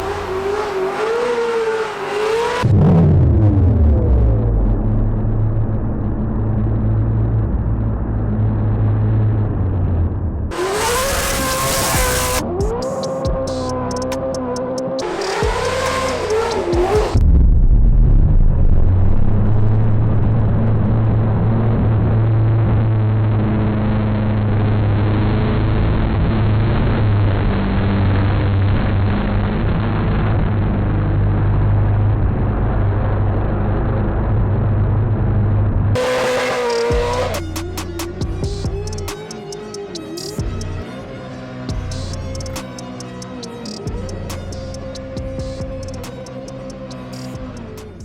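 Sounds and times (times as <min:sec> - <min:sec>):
engine running: 0:00.0 - 0:48.0
music: 0:10.9 - 0:17.5, 0:36.0 - 0:48.0.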